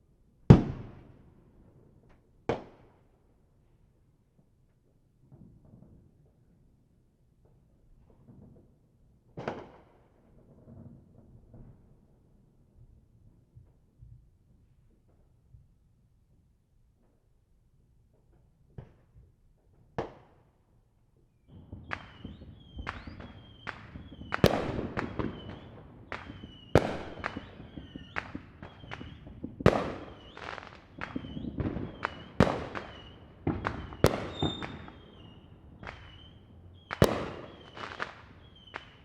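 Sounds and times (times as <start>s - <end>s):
distant fireworks bangs: 21.5s - 39.0s.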